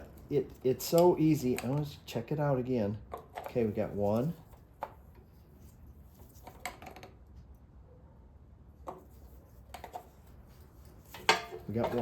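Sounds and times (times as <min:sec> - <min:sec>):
clicks and rustles of wires: 0:00.0 - 0:02.0, 0:03.1 - 0:07.5, 0:08.8 - 0:12.0.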